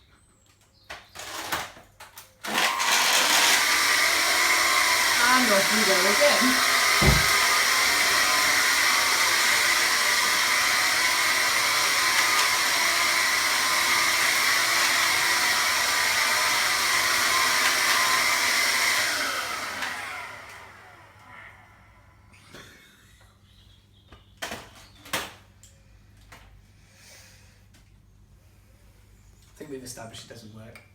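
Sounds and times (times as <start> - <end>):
vacuum cleaner motor whining: 2.4 - 22.3.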